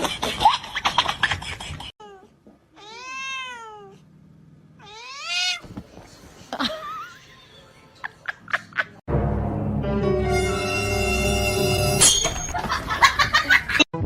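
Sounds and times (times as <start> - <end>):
cat meowing: 2.8 - 4.0, 4.8 - 5.6.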